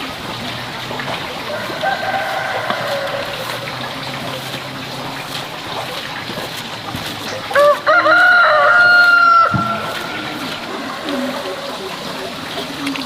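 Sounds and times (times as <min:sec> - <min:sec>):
rooster crowing: 0:01.4 - 0:03.8, 0:07.6 - 0:10.1.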